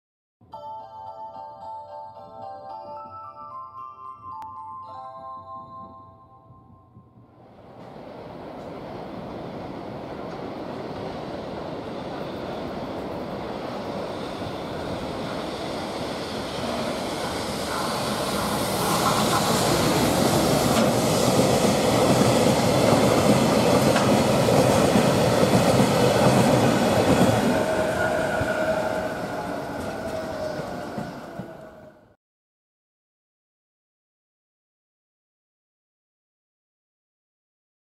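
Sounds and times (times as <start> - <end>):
train wheels rumbling on rail: 6.6 - 32.0.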